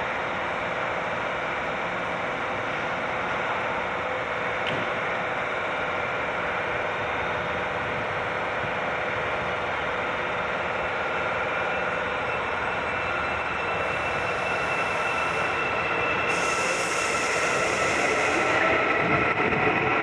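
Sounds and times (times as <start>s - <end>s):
metro train rumbling on track: 0.0s - 20.0s
high hiss: 16.2s - 18.6s.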